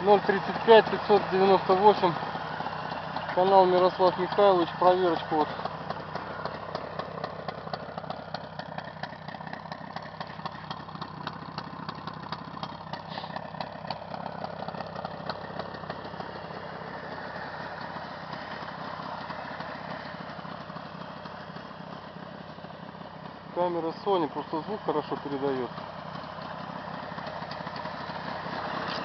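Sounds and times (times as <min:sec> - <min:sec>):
two-stroke engine idling: 0:00.0 - 0:29.0.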